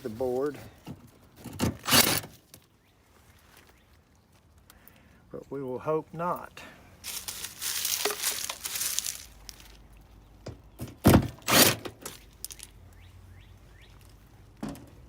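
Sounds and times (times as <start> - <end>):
handling rustle: 0.0 - 1.1, 7.0 - 9.9, 11.4 - 12.8.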